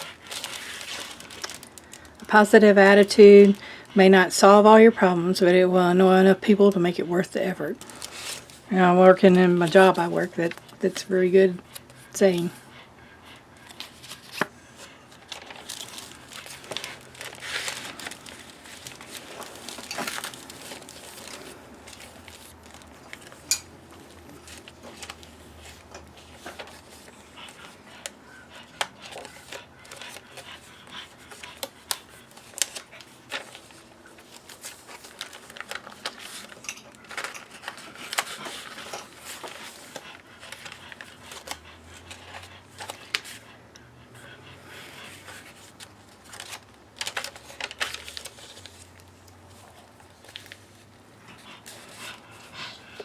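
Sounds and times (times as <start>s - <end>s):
paper rustling and crinkling: 0.0s - 3.6s, 7.3s - 10.9s, 13.6s - 43.5s, 45.3s - 53.0s.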